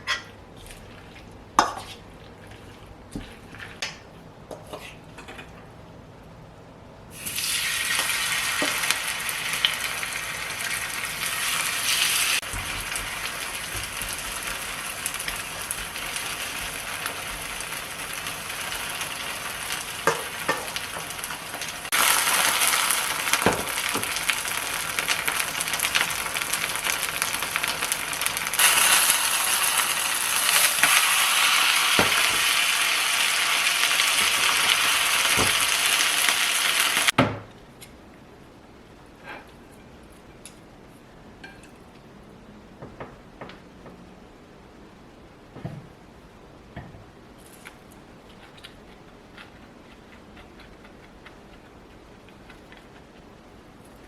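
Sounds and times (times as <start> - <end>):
food sizzling in oil: 7.1 - 37.2.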